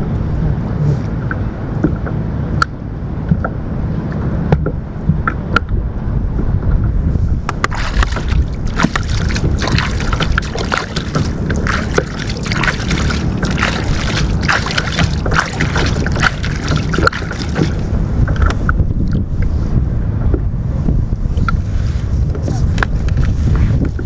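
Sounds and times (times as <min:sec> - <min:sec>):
wind buffeting microphone: 0:00.0 - 0:24.0
water splashing against kayak: 0:07.4 - 0:19.5.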